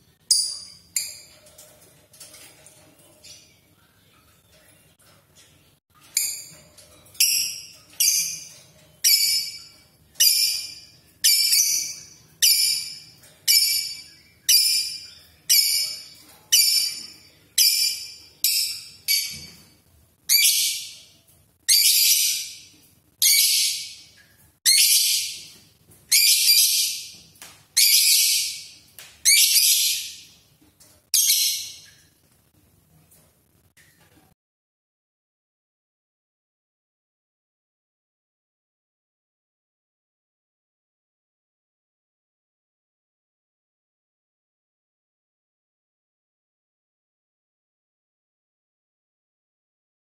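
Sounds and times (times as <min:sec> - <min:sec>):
cage bird shrill calls: 0:26.1 - 0:27.1, 0:27.8 - 0:28.7, 0:31.2 - 0:31.8.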